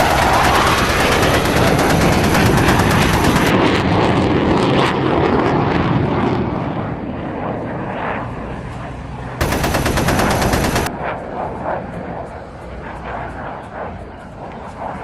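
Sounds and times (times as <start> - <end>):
machine-gun fire: 0.0 - 3.6, 9.4 - 10.9
jet aircraft noise: 0.0 - 15.0.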